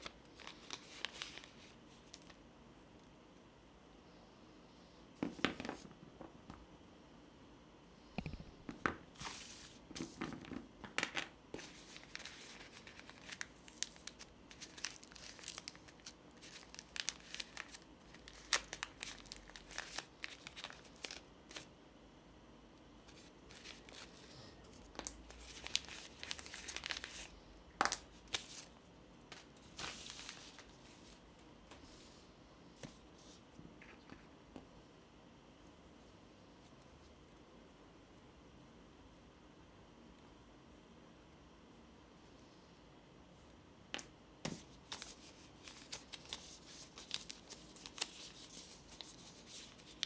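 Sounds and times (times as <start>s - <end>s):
packaging crinkling and tearing: 0.0s - 2.4s, 11.6s - 21.7s, 24.8s - 28.7s, 44.8s - 50.0s.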